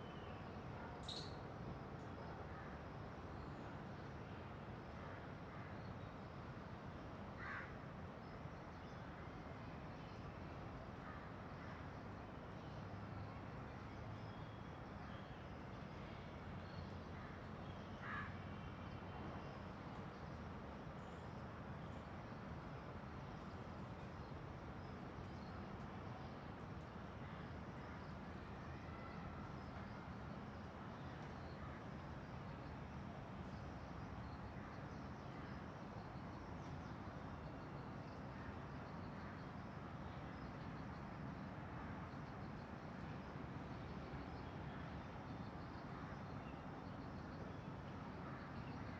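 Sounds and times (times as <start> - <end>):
outdoor background noise: 0.0 - 48.9
faint bird chirps: 0.1 - 1.5.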